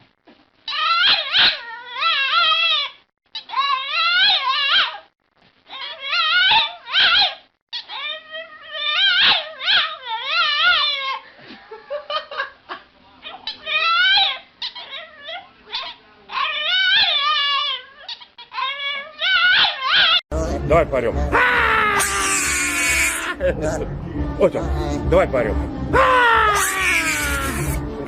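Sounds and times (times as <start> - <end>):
animal wavering high calls: 21.3 - 23.4, 26.0 - 27.8.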